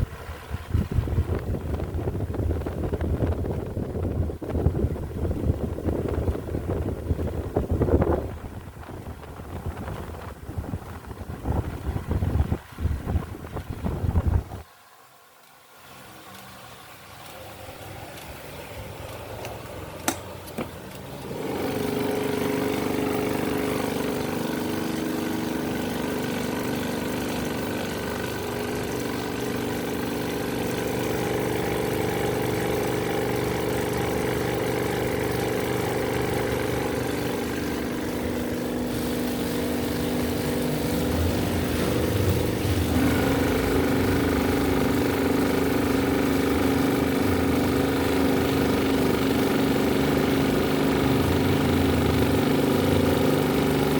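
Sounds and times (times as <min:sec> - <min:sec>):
electric fans humming: 0:00.0 - 0:14.7, 0:15.4 - 0:53.9.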